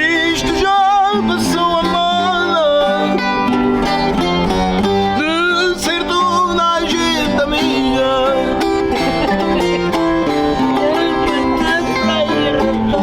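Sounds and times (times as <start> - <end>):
accordion: 0.0 - 13.0
plucked string instruments: 0.0 - 13.0
people singing: 5.2 - 13.0.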